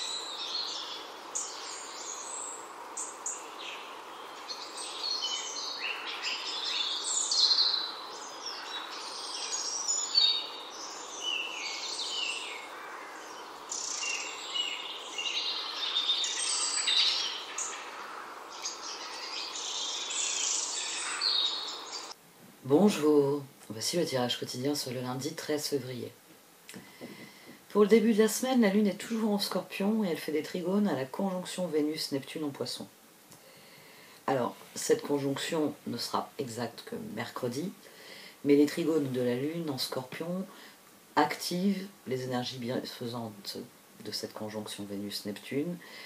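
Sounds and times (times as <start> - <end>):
many small birds chirping: 0.0 - 22.2
steady background hiss: 0.0 - 46.0.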